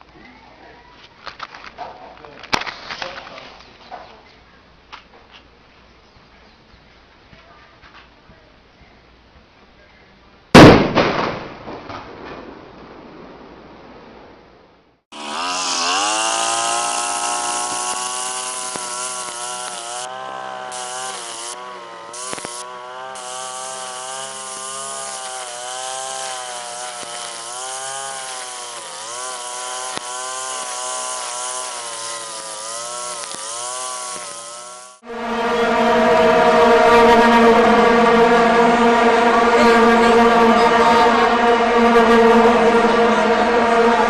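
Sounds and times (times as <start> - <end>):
power tool motor running: 15.1 - 44.0.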